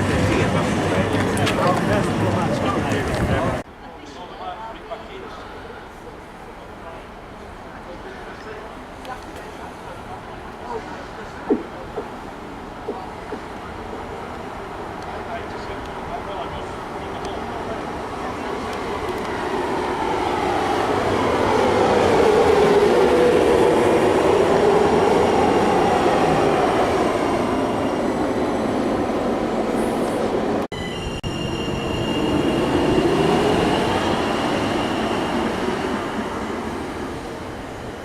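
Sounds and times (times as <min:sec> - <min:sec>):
train wheels on rails: 0:00.0 - 0:03.6, 0:10.6 - 0:38.0.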